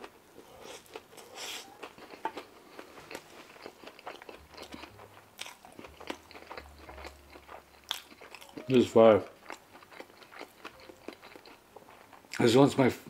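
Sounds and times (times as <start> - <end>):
chewing with small crunches: 0.0 - 12.6.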